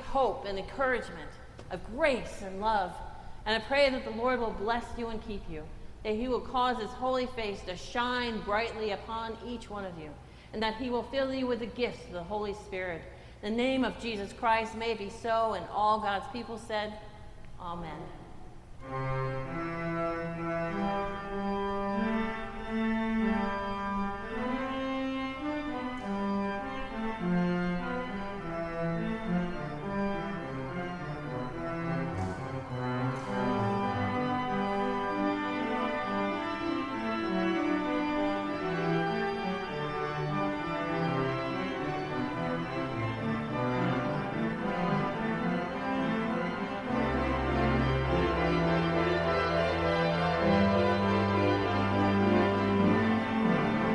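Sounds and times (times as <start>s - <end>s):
organ playing slow melody: 18.6s - 53.9s.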